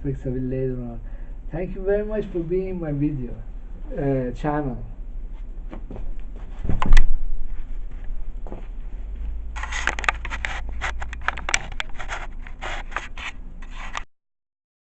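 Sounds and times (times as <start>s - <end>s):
low steady hum: 0.0s - 14.0s
recording device being handled: 5.4s - 8.7s, 9.5s - 14.1s.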